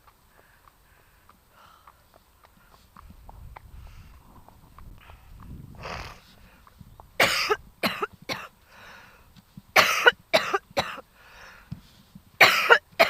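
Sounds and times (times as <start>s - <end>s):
woman breathing in: 0.3s - 2.8s, 8.7s - 9.3s, 11.1s - 11.8s
woman coughing: 7.2s - 8.5s, 9.8s - 11.0s, 12.4s - 12.9s.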